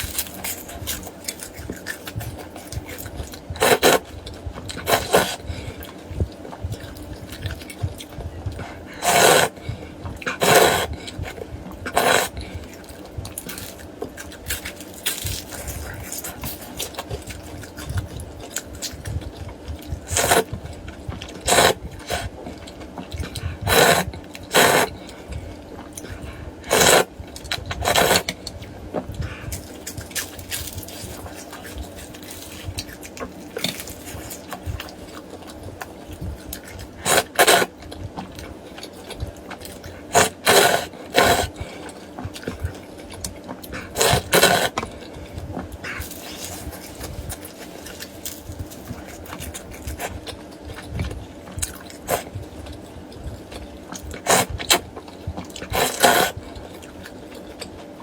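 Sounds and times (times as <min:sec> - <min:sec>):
soft chewing: 0:00.0 - 0:58.0
loud slurps of noodles: 0:09.0 - 0:09.6, 0:10.4 - 0:10.9, 0:12.0 - 0:12.3, 0:21.5 - 0:22.3, 0:23.7 - 0:24.9, 0:26.7 - 0:27.1, 0:27.8 - 0:28.2, 0:37.0 - 0:37.7, 0:44.0 - 0:44.7, 0:54.2 - 0:54.6, 0:55.7 - 0:56.4.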